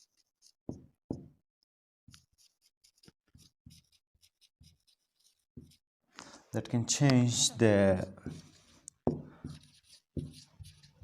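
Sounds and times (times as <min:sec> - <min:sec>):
pen scratching on paper: 0:00.0 - 0:00.8, 0:02.1 - 0:05.8, 0:08.2 - 0:11.0.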